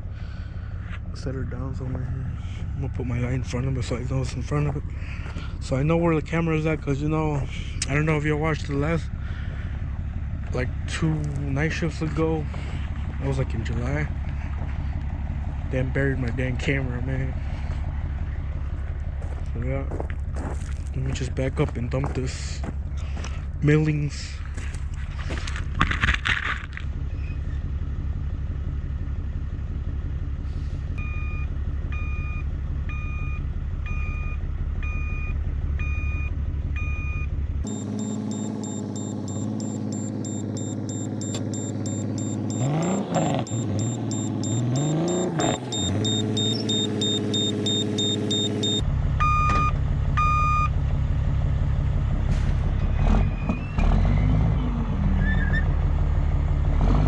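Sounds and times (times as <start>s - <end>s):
reversing alarm beeping: 31.0s - 50.7s
diesel truck engine revving: 35.6s - 57.0s.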